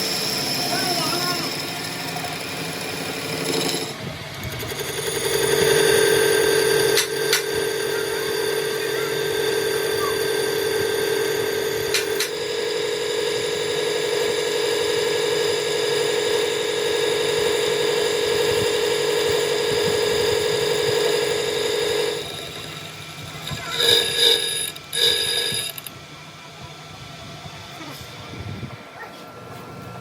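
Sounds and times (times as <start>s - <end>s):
power tool motor running: 0.0s - 28.2s
short metallic rings: 23.4s - 25.9s.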